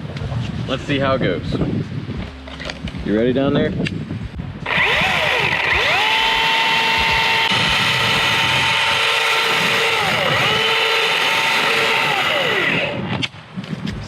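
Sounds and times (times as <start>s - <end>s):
electric chainsaw cutting wood: 4.6s - 13.2s.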